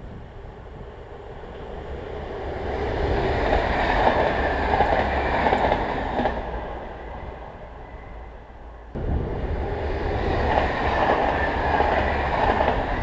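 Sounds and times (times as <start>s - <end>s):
passenger train passing: 0.0s - 13.0s
train wheels clicking over rails: 2.6s - 6.8s, 9.0s - 13.0s.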